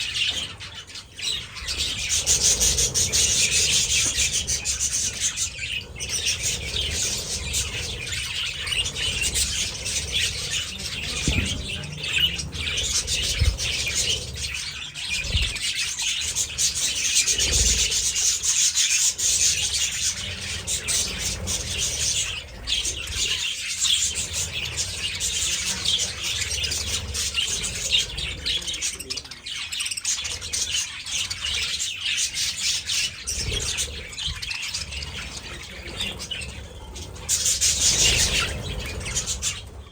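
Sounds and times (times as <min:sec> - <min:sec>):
budgies chattering and chirping: 0:00.0 - 0:39.9
low thuds: 0:11.0 - 0:14.2.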